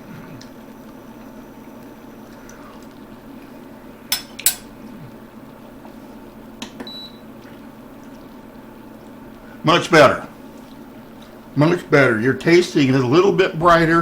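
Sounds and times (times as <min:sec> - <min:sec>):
steady low hum: 0:00.0 - 0:14.0
metal spoon clinking against pot: 0:04.1 - 0:04.7.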